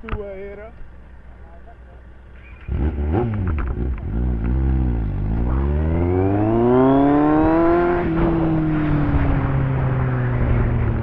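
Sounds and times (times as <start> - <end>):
motorcycle engine revving: 2.3 - 11.0.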